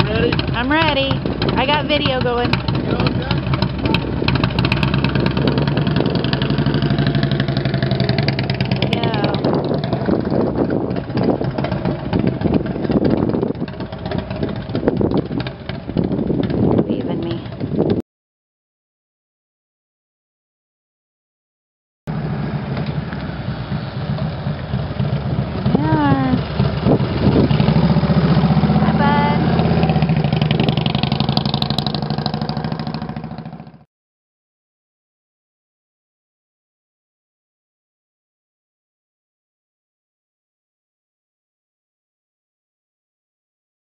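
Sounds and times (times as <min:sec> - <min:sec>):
motorcycle engine running: 0:00.0 - 0:18.0, 0:22.1 - 0:33.9.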